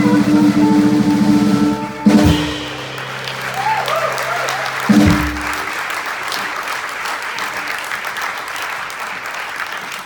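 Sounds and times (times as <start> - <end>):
jazz band chord ringing: 0.0 - 6.0
audience applauding: 2.5 - 10.0.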